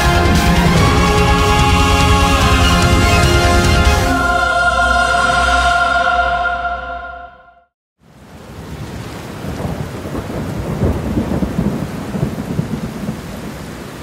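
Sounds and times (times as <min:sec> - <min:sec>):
steady rain: 0:08.0 - 0:14.0
thunder rumbling: 0:08.4 - 0:13.7.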